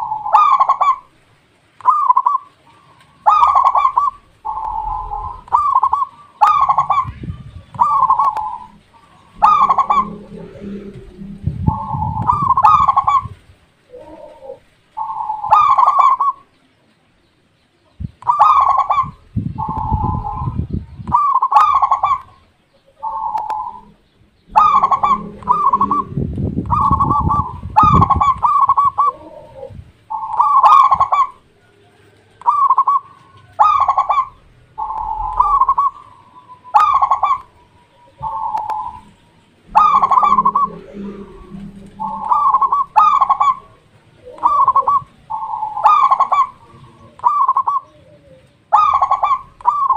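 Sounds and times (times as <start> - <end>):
dove cooing: 0.0 - 1.1, 1.8 - 16.5, 18.2 - 49.9
low rumble: 4.1 - 5.8, 6.6 - 13.6, 22.9 - 28.5, 34.3 - 36.5, 37.4 - 44.3.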